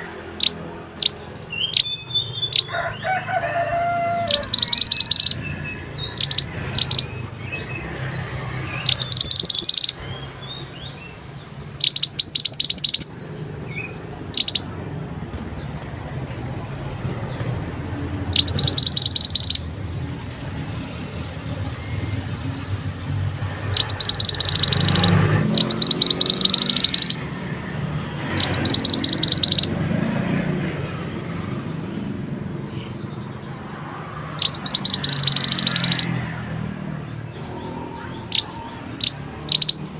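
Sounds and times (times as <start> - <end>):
bird singing rolling trills: 0.0 - 3.1, 4.1 - 14.8, 16.6 - 27.4, 28.2 - 29.8, 32.8 - 36.3, 37.0 - 39.9.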